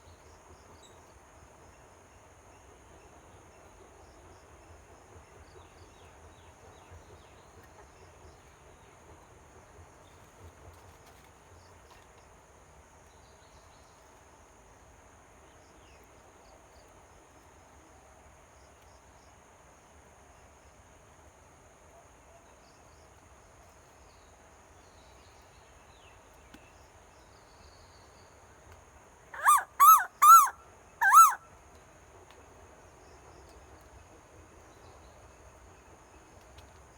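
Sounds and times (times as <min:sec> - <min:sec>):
crickets trilling: 0:29.4 - 0:31.4.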